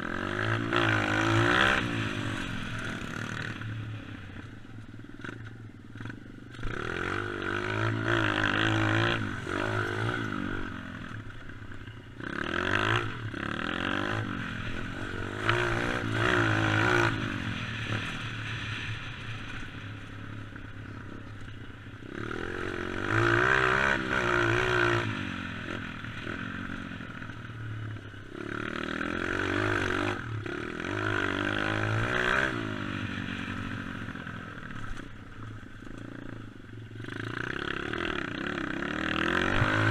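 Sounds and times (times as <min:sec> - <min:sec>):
dirt bike engine revving: 0:00.0 - 0:04.1, 0:06.0 - 0:11.4, 0:12.2 - 0:21.2, 0:22.0 - 0:27.1, 0:28.3 - 0:35.1, 0:35.9 - 0:39.9.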